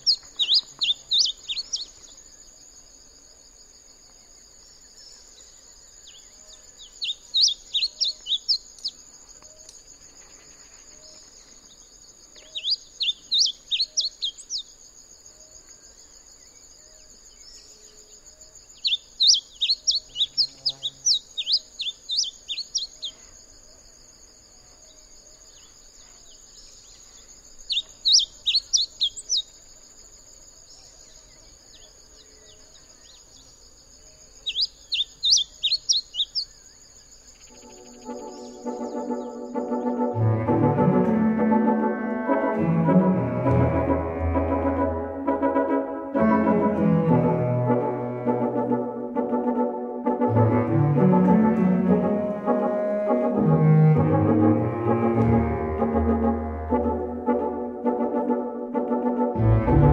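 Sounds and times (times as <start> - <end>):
bird singing high chirps: 0.0 - 2.3, 5.2 - 14.7, 18.7 - 23.2, 25.6 - 29.6, 34.2 - 40.0
high insect drone: 0.0 - 58.4.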